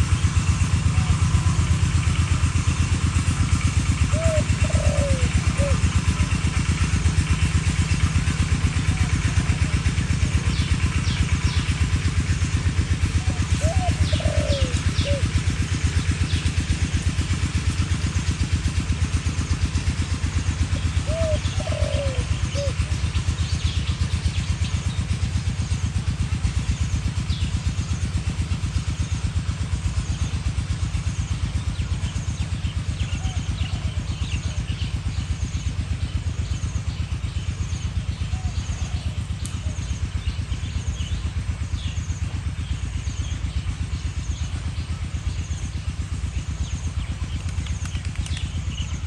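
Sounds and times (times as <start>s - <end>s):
engine idling: 0.0s - 49.0s
small birds chirping: 4.0s - 49.0s
dove cooing: 4.1s - 6.0s, 13.2s - 15.4s, 21.0s - 22.8s, 38.3s - 39.2s.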